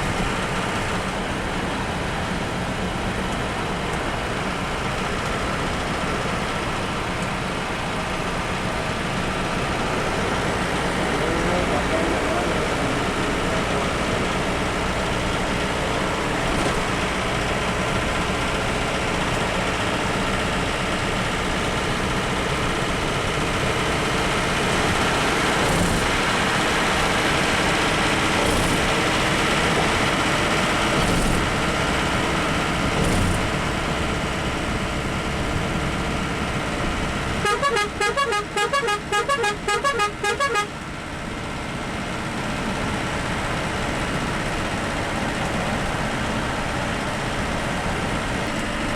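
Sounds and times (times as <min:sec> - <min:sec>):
bus engine and road noise: 0:00.0 - 0:48.9
rapid horn toots: 0:37.4 - 0:40.8.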